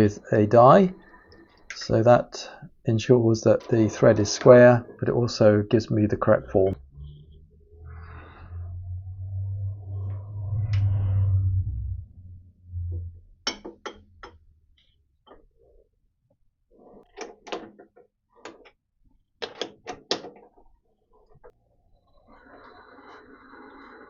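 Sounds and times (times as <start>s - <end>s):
metallic clicks and knocks: 19.4s - 20.6s.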